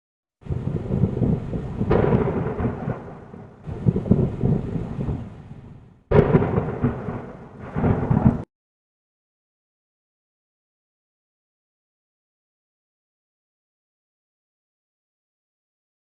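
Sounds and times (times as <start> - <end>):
heavy rain: 0.4 - 8.5
sharp thunder crack: 0.4 - 8.5
thunder rolling: 0.4 - 8.5.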